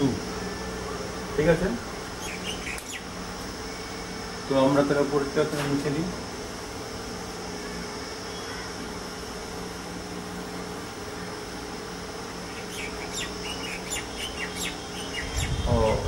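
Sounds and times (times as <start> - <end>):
background hum: 0.0 - 16.0
small birds chirping: 1.8 - 4.0, 12.4 - 16.0.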